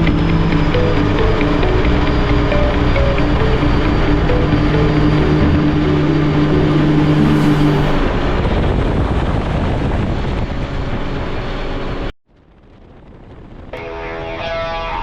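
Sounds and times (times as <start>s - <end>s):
background music: 0.0s - 8.3s
jet boat engine: 0.0s - 12.1s.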